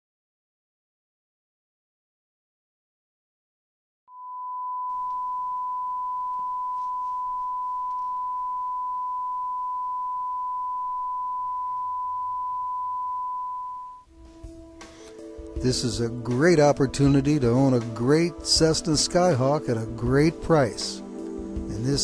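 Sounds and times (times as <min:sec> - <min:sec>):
sine test tone: 0:04.1 - 0:14.1.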